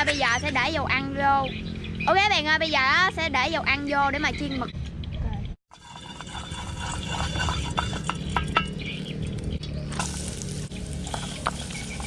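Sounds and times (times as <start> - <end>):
oil crackling and popping: 5.7 - 12.0
fire low rumble: 5.8 - 12.0.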